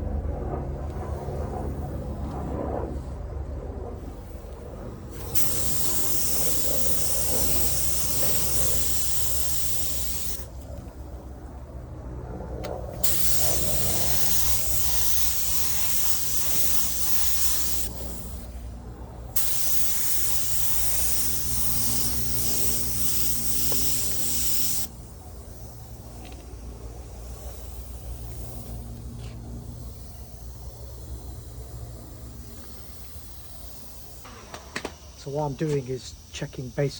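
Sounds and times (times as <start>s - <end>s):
steady low hum: 0.0s - 36.9s
spray gun hissing: 5.0s - 10.5s, 13.0s - 18.7s, 19.3s - 36.9s.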